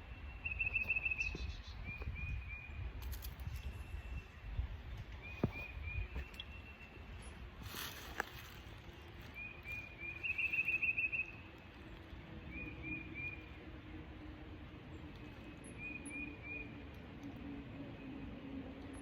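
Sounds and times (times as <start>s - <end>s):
bird chirping: 0.0s - 7.3s, 8.9s - 11.5s, 15.2s - 16.8s.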